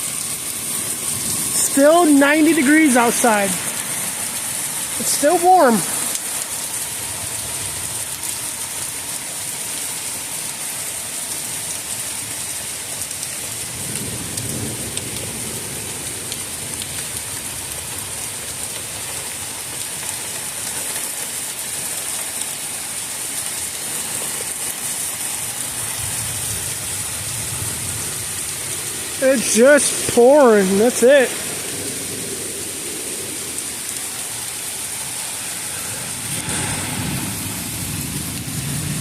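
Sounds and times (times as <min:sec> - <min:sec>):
heavy rain pouring: 0:00.0 - 0:39.0
thunder rumble: 0:25.7 - 0:33.8, 0:35.5 - 0:39.0.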